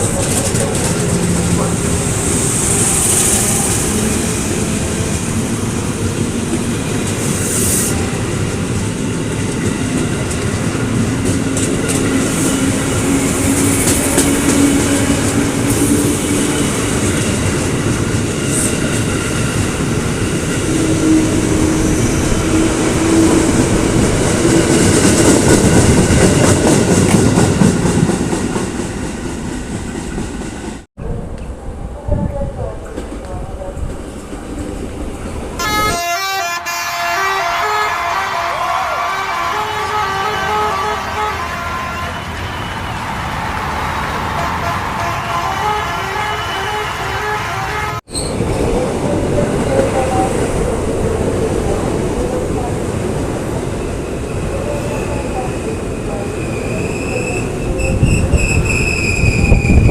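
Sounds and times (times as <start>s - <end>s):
wheels clacking over rail joints: 0.0s - 2.4s
electric train rumbling on rails: 0.0s - 59.9s.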